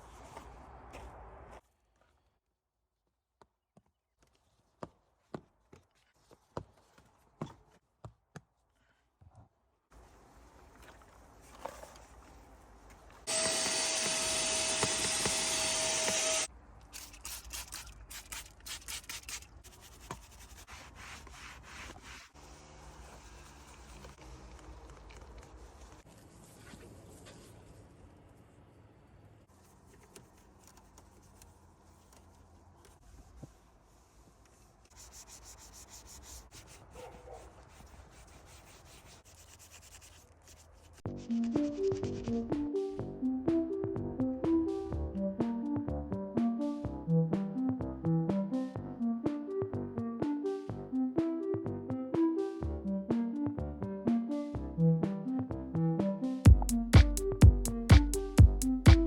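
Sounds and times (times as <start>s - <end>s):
power tool motor whine: 13.3s - 16.5s
scrubbing strokes on car surface: 17.4s - 24.1s, 33.0s - 41.0s
electronic music with beat: 41.1s - 59.0s.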